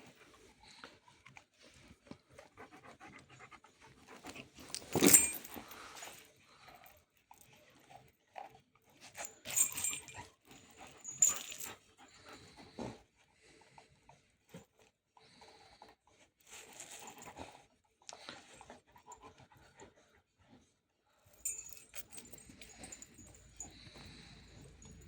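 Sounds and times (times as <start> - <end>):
dog panting: 0.1 - 6.2.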